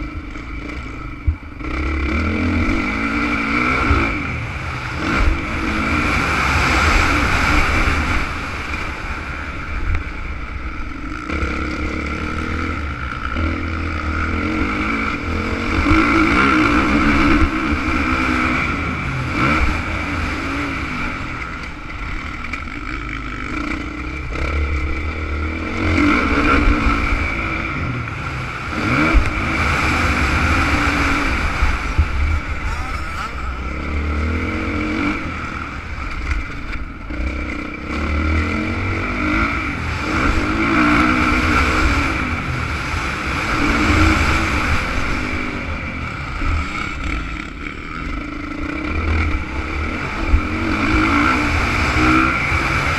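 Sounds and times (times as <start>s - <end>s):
motocross bike engine revving: 0.0s - 52.9s
low rumble: 17.4s - 40.5s.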